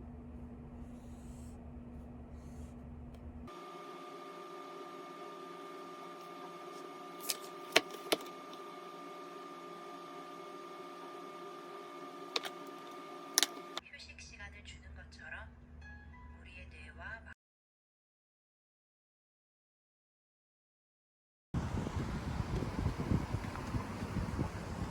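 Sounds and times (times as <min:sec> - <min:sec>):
appliance hum with high whine: 0:00.0 - 0:16.4, 0:21.6 - 0:24.9
low electrical hum: 0:00.0 - 0:17.3.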